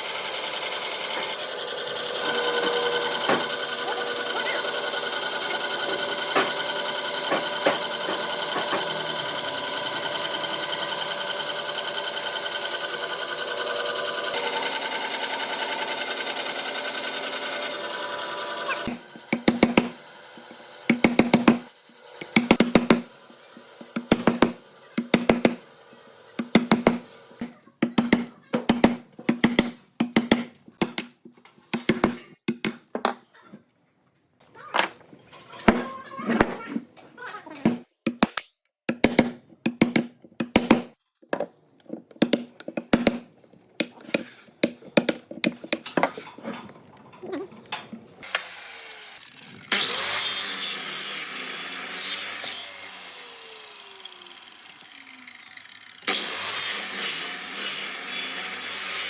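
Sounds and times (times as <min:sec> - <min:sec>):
power tool running: 0:00.0 - 0:27.5, 0:48.2 - 0:59.0.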